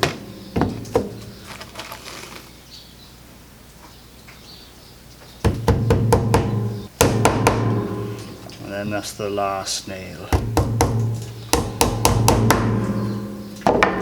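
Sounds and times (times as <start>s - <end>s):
hammer tapping nails into wood: 10.3s - 12.8s.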